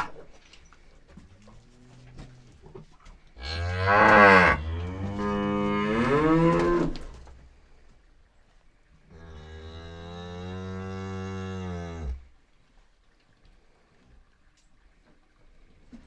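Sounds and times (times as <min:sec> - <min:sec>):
cow mooing: 0:03.4 - 0:07.0.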